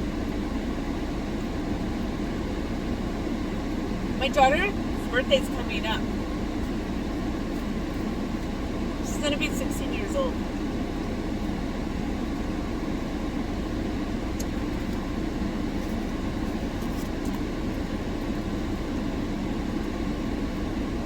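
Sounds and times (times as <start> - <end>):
car air conditioning blower: 0.0 - 21.0.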